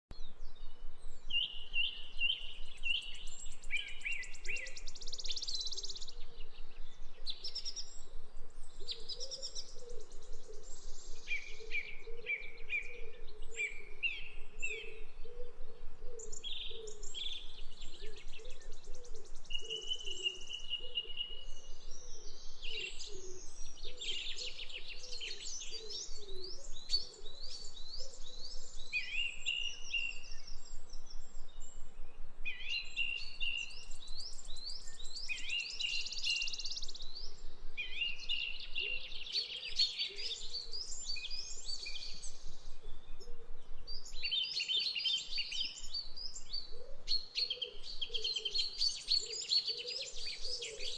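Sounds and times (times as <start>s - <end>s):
birds chirping and twittering: 0.1s - 50.9s.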